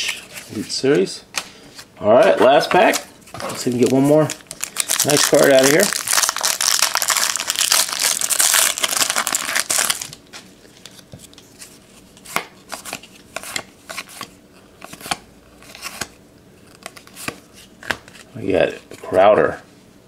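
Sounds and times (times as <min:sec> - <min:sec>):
wrapper tearing and crinkling: 0:03.6 - 0:10.2.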